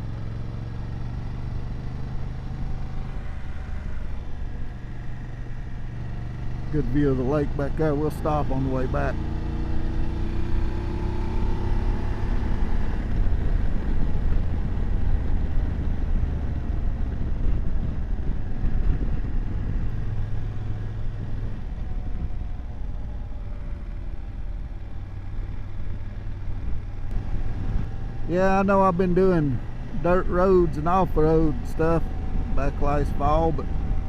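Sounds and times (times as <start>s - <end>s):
motorcycle engine running: 0.0s - 34.0s
wind rumble on microphone: 9.7s - 25.0s, 25.6s - 28.3s, 29.4s - 34.0s.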